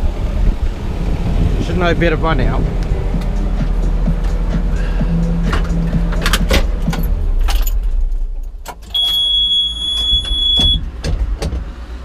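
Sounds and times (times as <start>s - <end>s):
excavator engine running: 0.0s - 12.0s
metallic clicks and knocks: 5.4s - 9.0s
high-pitched warning beep: 8.9s - 10.8s.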